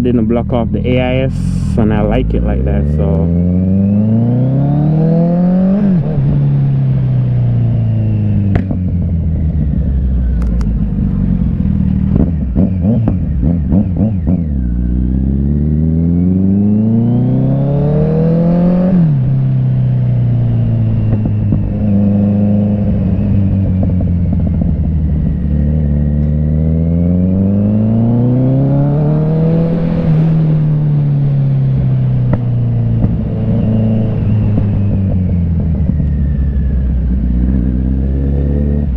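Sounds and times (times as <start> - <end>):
motorcycle engine revving: 0.0 - 38.9
exhaust crackling pops: 8.5 - 8.9, 32.2 - 33.3.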